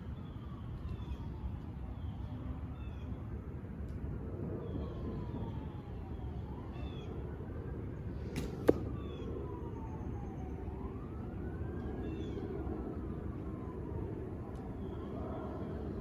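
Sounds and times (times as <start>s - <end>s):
faint siren wailing: 0.0s - 16.0s
arrow striking with smack: 8.4s - 8.9s.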